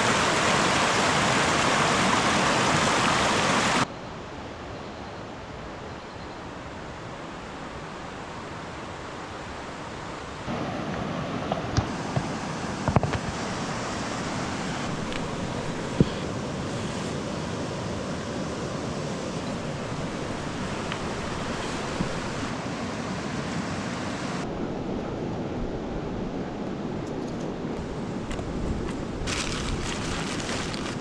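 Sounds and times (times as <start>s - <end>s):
river water rushing: 0.0s - 3.9s, 6.6s - 24.5s.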